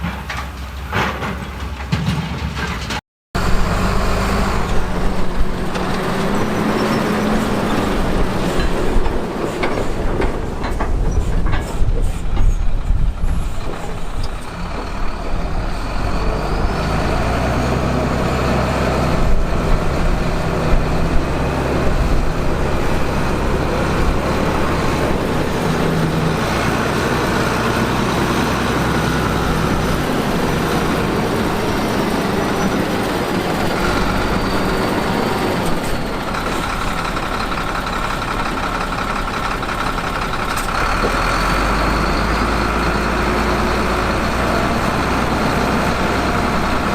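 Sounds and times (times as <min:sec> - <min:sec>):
short knocks: 0:00.0 - 0:03.0
heavy diesel machinery running: 0:00.0 - 0:46.9.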